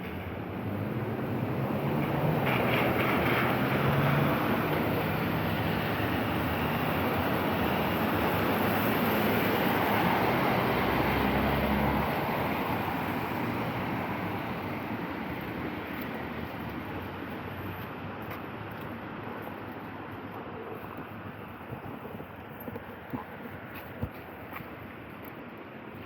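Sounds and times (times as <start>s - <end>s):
traffic on wet street: 0.0s - 26.0s.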